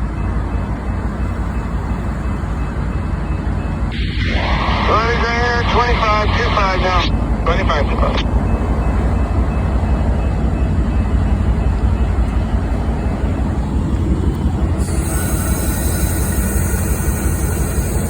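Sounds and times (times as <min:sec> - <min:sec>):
train rolling past: 0:00.0 - 0:18.0
high hiss: 0:04.0 - 0:08.2.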